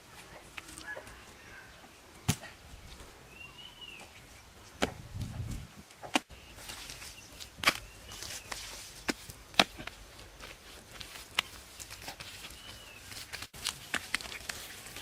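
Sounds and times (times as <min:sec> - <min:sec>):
faint bird chirping: 0:00.1 - 0:04.8, 0:12.0 - 0:13.3.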